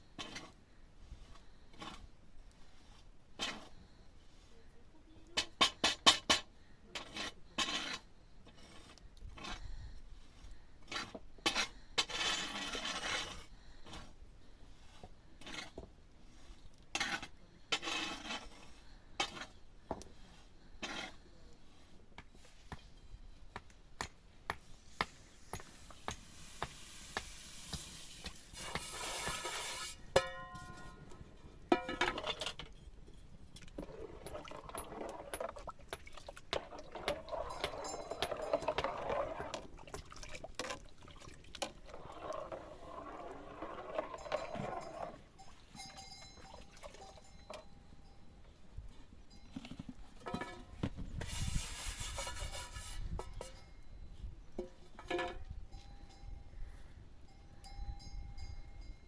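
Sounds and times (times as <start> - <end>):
scraping: 24.8 - 47.6, 49.6 - 53.7
struck metal vessel ringing: 30.1 - 32.1, 44.3 - 48.3
dishes and utensils clattering: 37.0 - 39.4.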